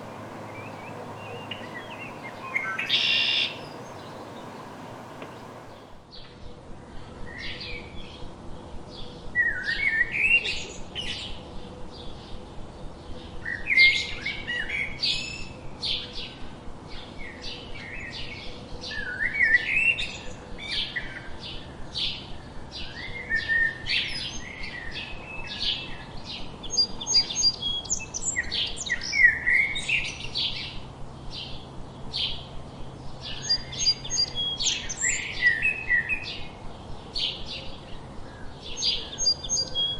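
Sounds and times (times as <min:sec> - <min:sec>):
songbirds chirping and singing: 0:00.0 - 0:05.9.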